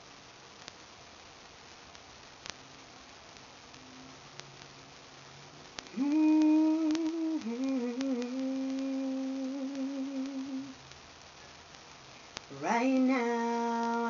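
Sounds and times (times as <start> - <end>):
woman humming: 5.9 - 10.8.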